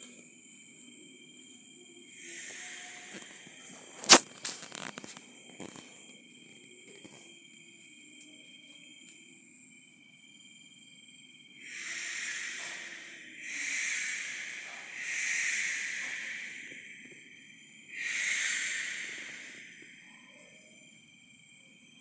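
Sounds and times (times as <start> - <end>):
high-pitched trilling insects: 0.0 - 22.0
harsh hissing in waves: 2.1 - 3.2, 11.6 - 20.1.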